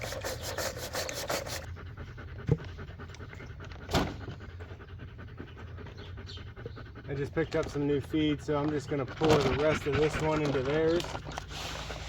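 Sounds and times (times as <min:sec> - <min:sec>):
dog panting: 0:00.0 - 0:12.0
thump: 0:03.9 - 0:04.4.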